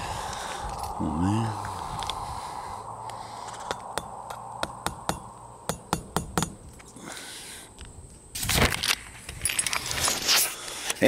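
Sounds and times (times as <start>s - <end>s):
hammer striking nails: 3.6s - 6.6s.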